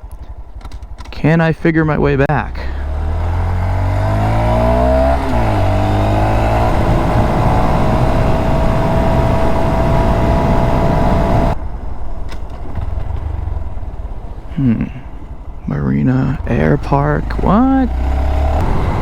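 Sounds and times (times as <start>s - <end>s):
motorcycle engine revving: 2.4s - 11.6s, 12.4s - 19.0s
wind noise on microphone: 4.6s - 11.6s.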